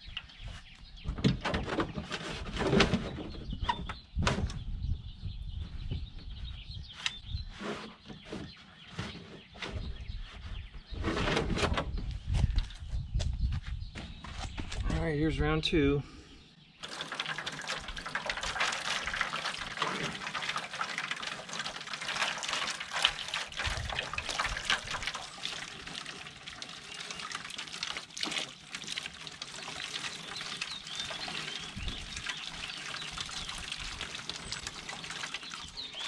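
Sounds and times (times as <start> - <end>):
water splashing on plastic: 16.8 - 36.0.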